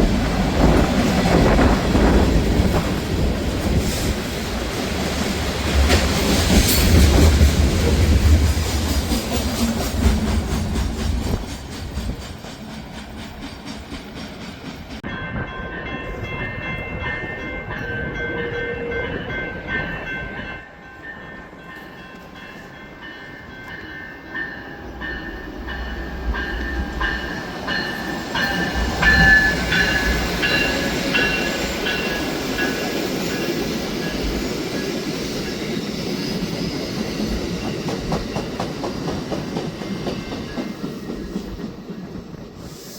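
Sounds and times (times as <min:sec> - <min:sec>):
train rumbling past: 0:00.0 - 0:42.9.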